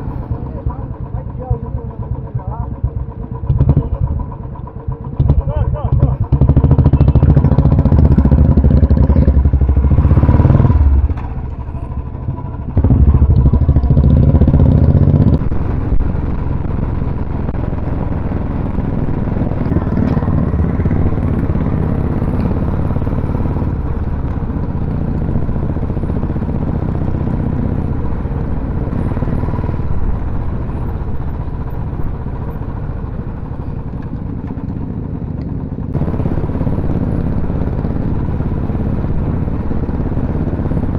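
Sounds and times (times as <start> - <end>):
motorcycle engines running: 0.0 - 40.9.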